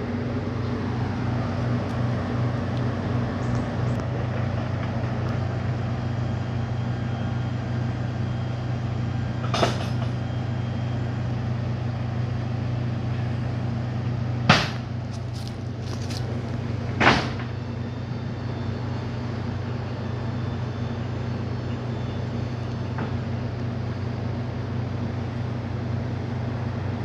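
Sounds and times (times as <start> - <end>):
diesel truck engine idling: 0.0 - 27.0.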